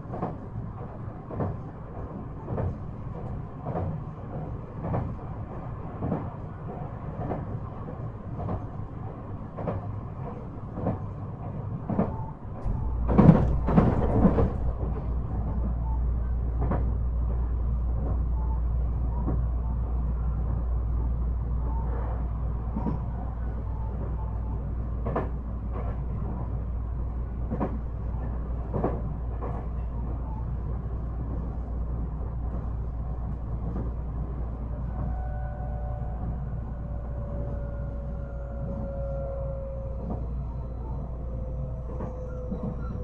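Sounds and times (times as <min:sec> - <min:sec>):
train wheels clicking over rail joints: 0:11.9 - 0:15.7.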